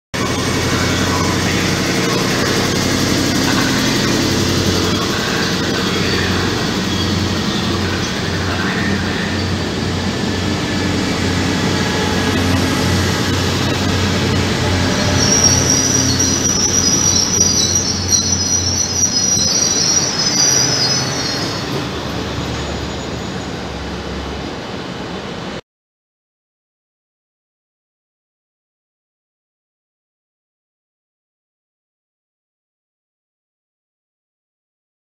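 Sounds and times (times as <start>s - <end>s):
high wheel squeal: 0.2s - 24.6s
low rumble of trains: 0.2s - 25.6s.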